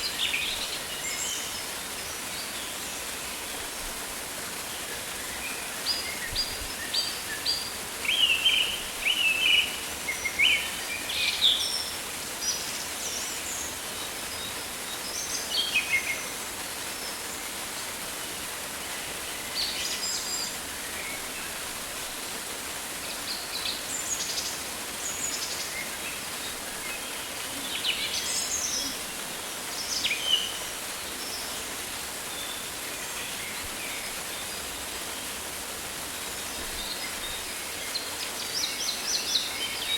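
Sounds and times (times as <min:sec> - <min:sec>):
falling water hiss: 0:00.0 - 0:39.9.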